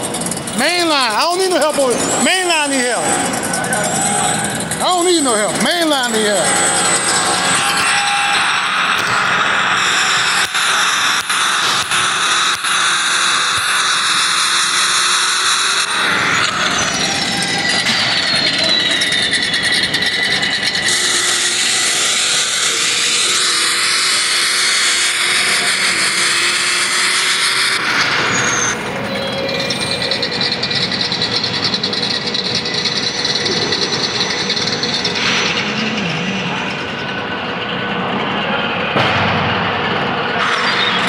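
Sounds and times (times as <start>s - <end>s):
race cars roaring at full throttle: 0.0s - 41.0s.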